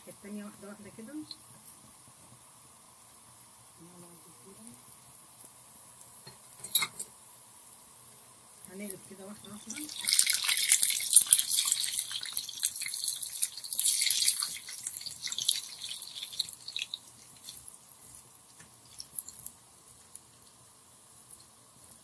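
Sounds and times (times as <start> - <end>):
food sizzling in hot oil: 0.0 - 22.0.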